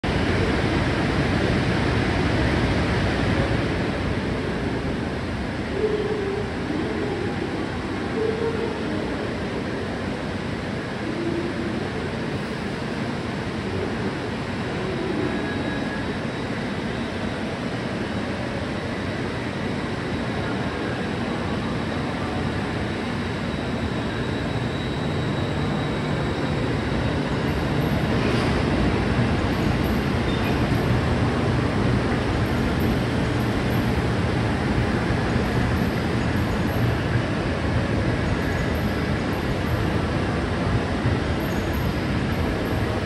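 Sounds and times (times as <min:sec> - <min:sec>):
electric train accelerating: 0:09.2 - 0:43.0.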